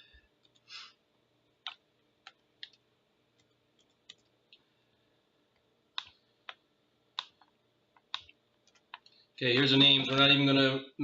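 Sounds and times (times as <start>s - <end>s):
faint low hum: 0.0s - 11.0s
computer mouse clicks: 0.4s - 0.7s, 1.6s - 2.8s, 3.4s - 4.7s, 5.5s - 9.2s.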